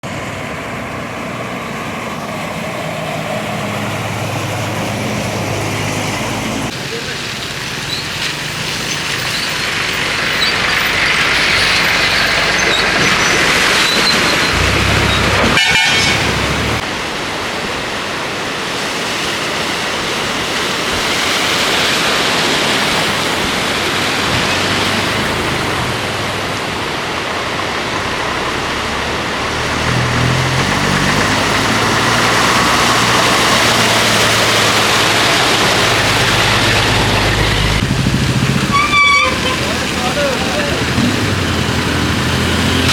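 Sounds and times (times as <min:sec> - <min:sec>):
vehicle engines running: 0:00.0 - 0:17.1, 0:22.2 - 0:42.9
rushing water and traffic: 0:00.0 - 0:42.9
horn-like buzz: 0:14.4 - 0:16.8, 0:38.6 - 0:39.7.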